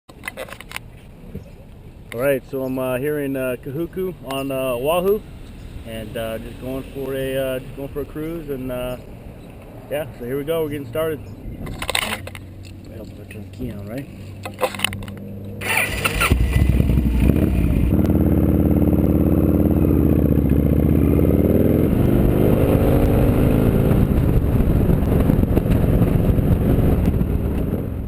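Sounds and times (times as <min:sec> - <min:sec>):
engine cranking: 0:11.6 - 0:18.0
motorcycle engine running: 0:12.3 - 0:28.0.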